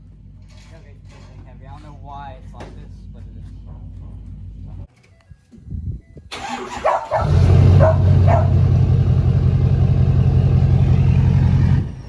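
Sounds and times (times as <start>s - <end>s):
truck engine idling: 0.0s - 5.0s, 5.6s - 12.0s
dog barking: 6.4s - 8.7s.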